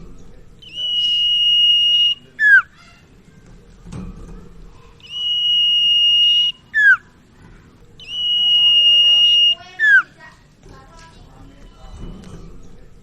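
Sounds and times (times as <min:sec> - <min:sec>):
bird singing whistled phrases: 0:00.6 - 0:02.8, 0:05.0 - 0:07.1, 0:08.0 - 0:10.2.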